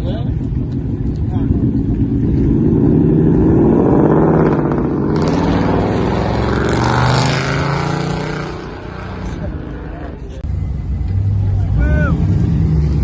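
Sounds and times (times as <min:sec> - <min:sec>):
car engine under throttle: 0:00.0 - 0:13.0.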